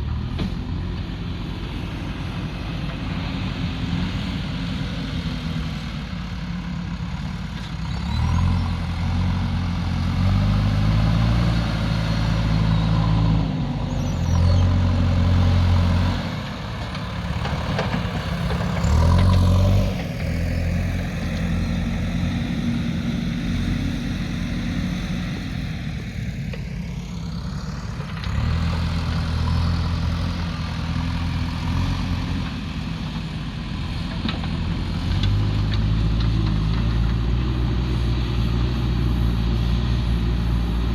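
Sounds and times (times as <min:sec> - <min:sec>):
diesel machinery engines working: 0:00.0 - 0:40.9.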